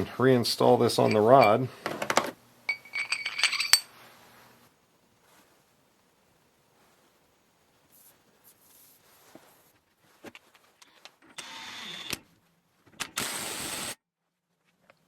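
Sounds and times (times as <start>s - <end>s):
metal parts clicking and knocking: 1.0s - 3.9s.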